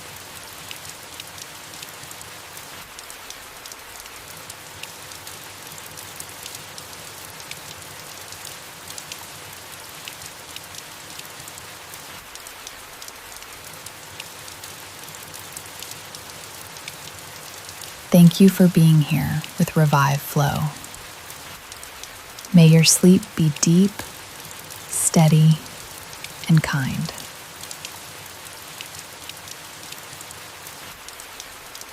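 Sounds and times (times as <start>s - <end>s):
rain falling on leaves: 0.0s - 31.9s.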